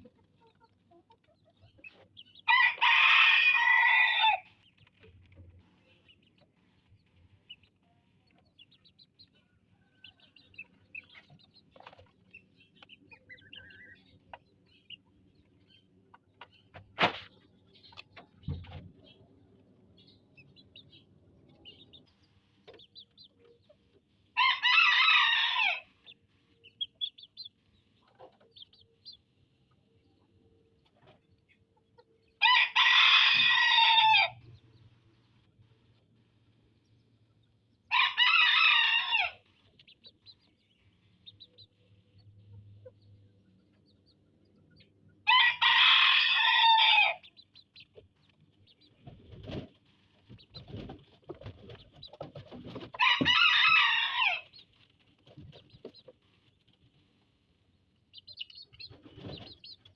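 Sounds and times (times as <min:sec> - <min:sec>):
rooster crowing: 0:02.5 - 0:04.5, 0:24.4 - 0:25.9, 0:32.4 - 0:34.4, 0:37.9 - 0:39.4, 0:45.2 - 0:47.2, 0:53.0 - 0:54.4.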